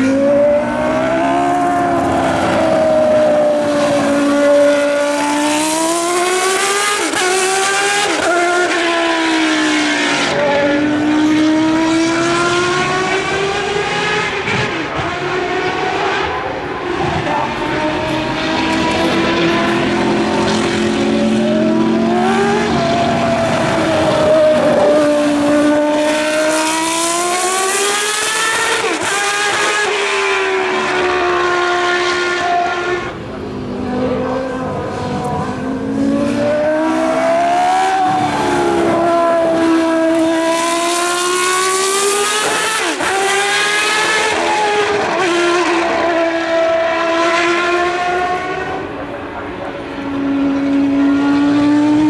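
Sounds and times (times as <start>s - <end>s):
racing car engine at high revs: 0.0s - 52.0s.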